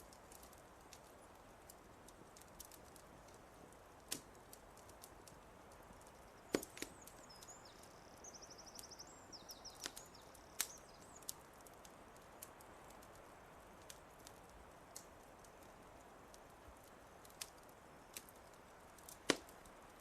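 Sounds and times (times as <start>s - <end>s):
wood fire crackling and popping: 0.0s - 20.0s
songbird chirping and trilling: 5.9s - 11.5s.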